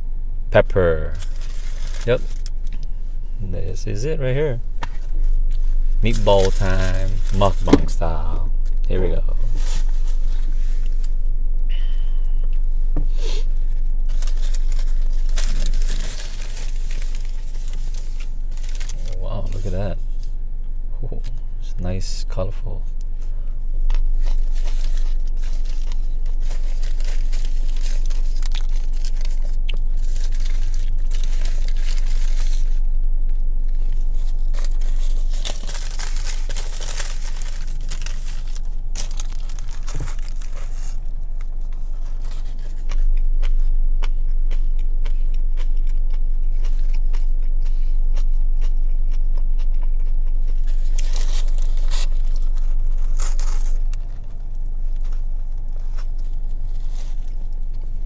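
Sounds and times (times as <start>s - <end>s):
steady low hum: 0.0s - 58.0s
paper wrapper crinkling and tearing: 1.0s - 2.9s, 4.8s - 11.2s, 13.4s - 19.9s, 23.8s - 32.9s, 33.7s - 43.6s, 50.5s - 58.0s
close-up biting and chewing: 13.3s - 19.6s, 22.9s - 58.0s.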